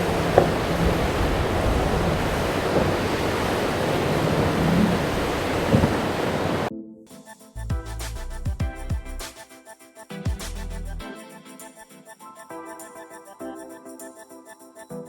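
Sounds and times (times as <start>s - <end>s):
surf: 0.0s - 6.7s
wind on microphone: 0.0s - 6.7s
music: 6.7s - 15.0s.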